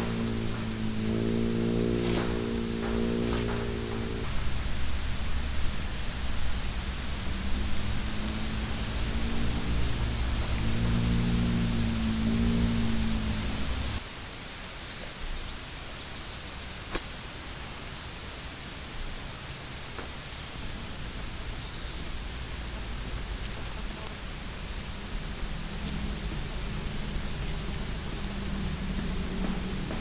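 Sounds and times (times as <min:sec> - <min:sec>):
small birds chirping trills: 0:00.0 - 0:14.0, 0:15.2 - 0:30.0
rain hissing: 0:00.0 - 0:14.8, 0:17.2 - 0:30.0.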